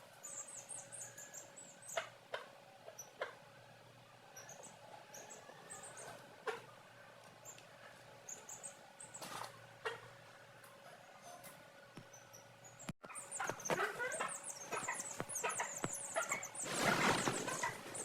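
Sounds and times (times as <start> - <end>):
chicks peeping: 12.8 - 18.0.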